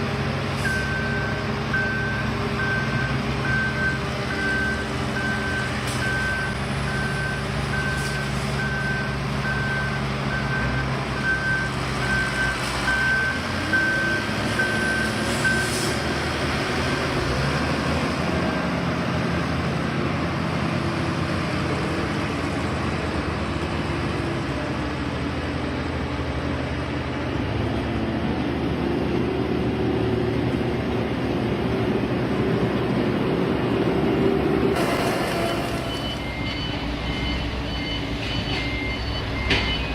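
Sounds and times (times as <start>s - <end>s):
heavy machine engine running: 0.0s - 39.9s
reversing alarm beeping: 0.6s - 16.0s, 34.8s - 39.9s.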